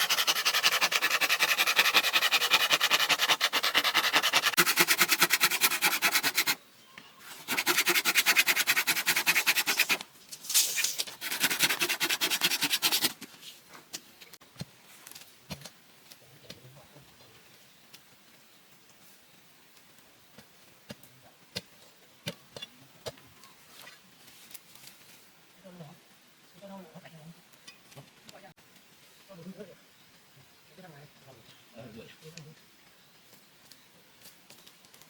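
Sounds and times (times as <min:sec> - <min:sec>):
rasping strokes on bamboo: 0:00.0 - 0:06.6, 0:07.2 - 0:13.2.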